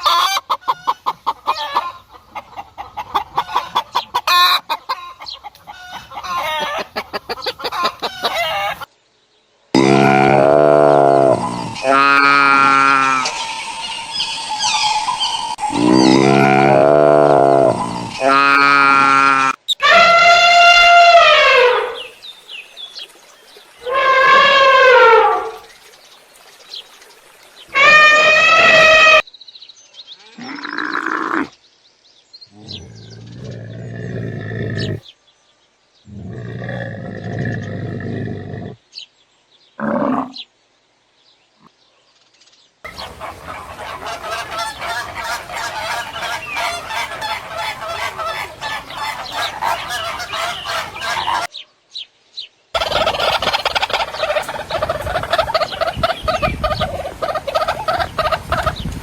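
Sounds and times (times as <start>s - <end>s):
poultry flock calling: 0.0s - 8.9s, 9.9s - 22.1s, 42.9s - 51.5s, 52.8s - 59.0s
low-pitched animal calls: 9.8s - 22.1s, 23.8s - 25.6s, 27.7s - 29.2s.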